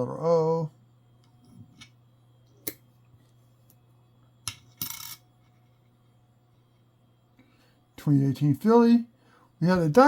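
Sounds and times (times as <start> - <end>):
low electrical hum: 0.0 - 10.0
coin clicking on desk: 4.5 - 5.2
coin scraping slide: 4.8 - 5.2.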